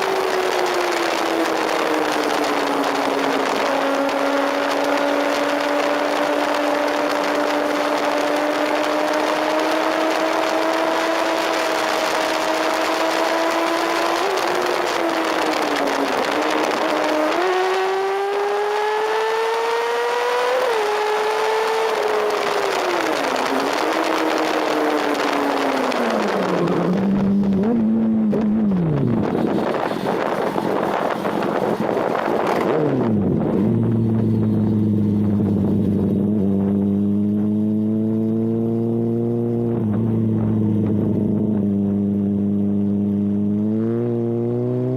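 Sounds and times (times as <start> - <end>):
wind rushing over microphone: 0.0 - 42.6
motorcycle engine at high revs: 0.0 - 44.9
wind rushing: 25.7 - 37.0.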